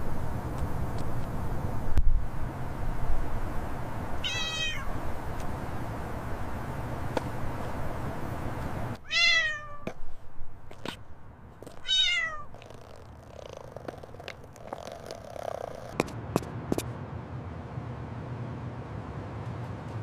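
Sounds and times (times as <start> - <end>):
kitten meowing: 4.2 - 5.0, 9.0 - 10.0, 11.7 - 15.9.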